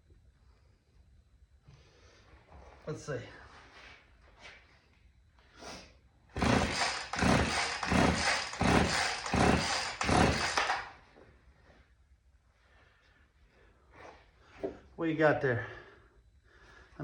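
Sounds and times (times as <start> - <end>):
chainsaw recoil starter pulls: 6.4 - 11.0.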